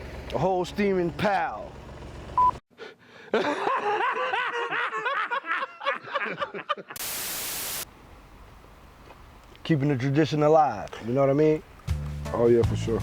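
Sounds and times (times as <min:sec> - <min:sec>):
person laughing: 0:03.3 - 0:07.0
static hiss: 0:07.0 - 0:07.9.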